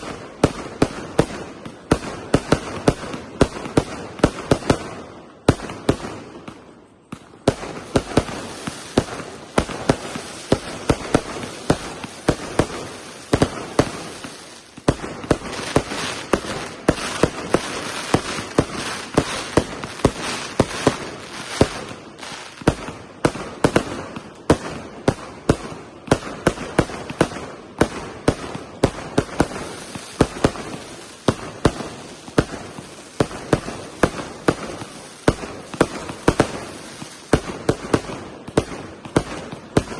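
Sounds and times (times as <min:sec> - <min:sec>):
fireworks bangs: 0:00.0 - 0:39.9
fireworks crackle: 0:00.0 - 0:39.9.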